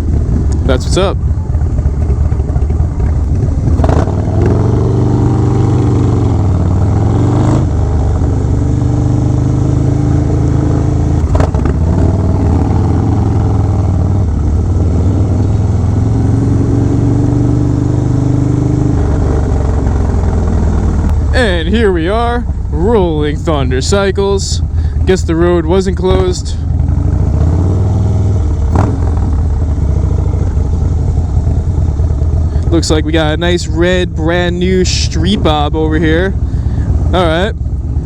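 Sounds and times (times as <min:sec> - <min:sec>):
motorcycle engine cruising: 0:00.0 - 0:38.0.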